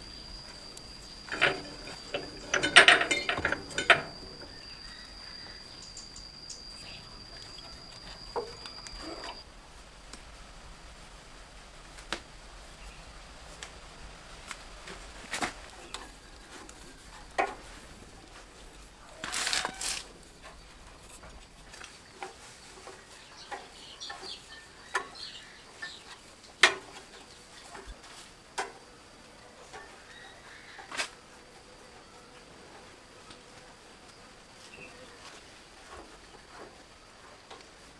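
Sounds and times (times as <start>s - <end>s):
scraping rustle: 0.0s - 5.4s, 14.4s - 24.6s
tools and metal parts clicking: 0.6s - 4.8s.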